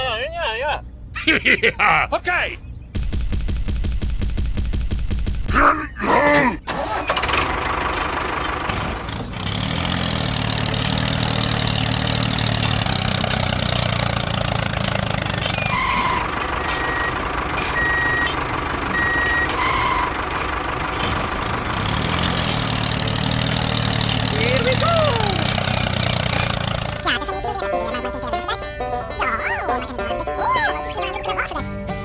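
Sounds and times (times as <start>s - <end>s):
vehicle engine running: 6.8s - 32.0s.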